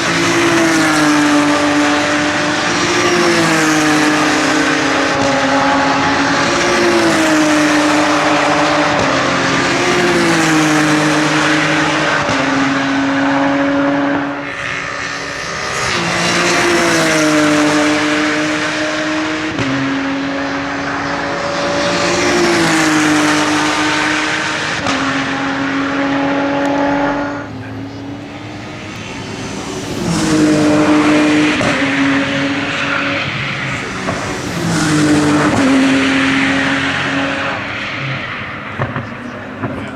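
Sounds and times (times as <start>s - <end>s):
racing cars passing: 0.0s - 39.9s.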